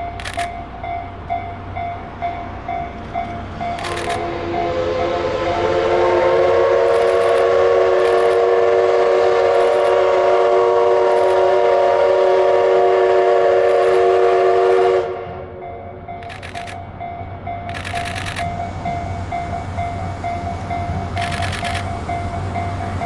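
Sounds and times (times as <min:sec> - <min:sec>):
steam locomotive whistle blast: 0:03.7 - 0:15.6.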